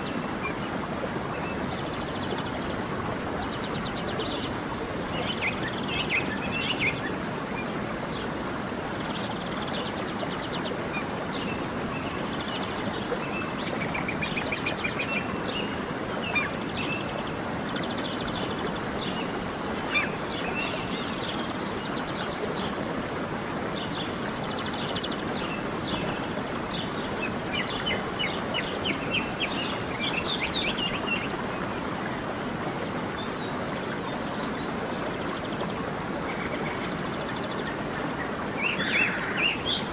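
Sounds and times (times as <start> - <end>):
stream rushing: 0.0 - 39.9
birds chirping and trilling: 36.4 - 39.9.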